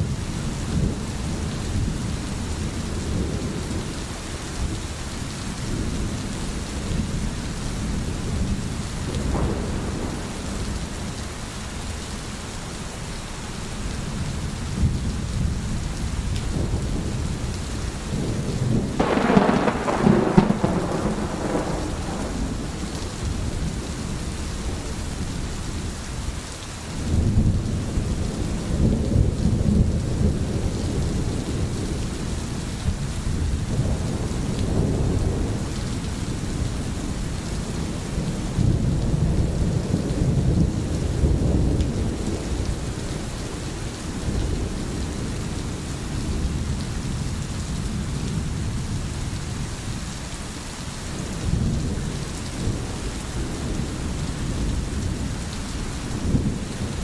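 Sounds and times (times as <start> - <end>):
steady rain: 0.0 - 57.0
thunder rumbling: 5.5 - 11.5, 13.7 - 26.0, 27.0 - 49.6
loud thunderclap: 9.1 - 10.8, 18.1 - 23.8.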